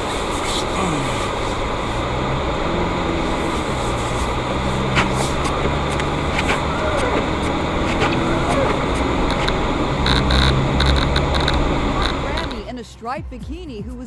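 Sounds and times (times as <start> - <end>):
car engine hum and road noise: 0.0 - 12.9.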